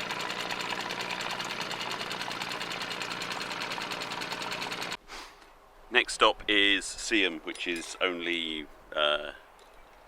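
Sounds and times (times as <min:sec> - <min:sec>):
boat engine clattering: 0:00.0 - 0:05.0.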